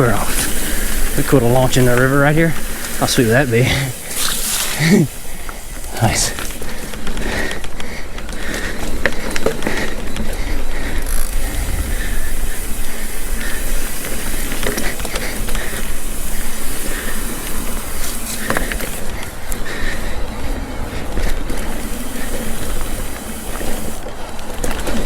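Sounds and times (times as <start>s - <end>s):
bicycle freewheel ratcheting clicks: 0.0s - 19.9s, 21.2s - 24.9s
tyres rumbling on dirt: 0.0s - 25.0s
wind on microphone: 10.9s - 15.2s.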